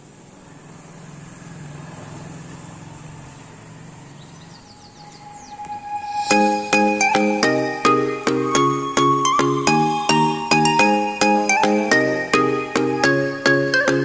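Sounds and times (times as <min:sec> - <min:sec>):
low engine-like hum: 0:00.0 - 0:06.0
bird chirps: 0:03.9 - 0:08.4
loud music with bell-like notes: 0:05.3 - 0:14.0.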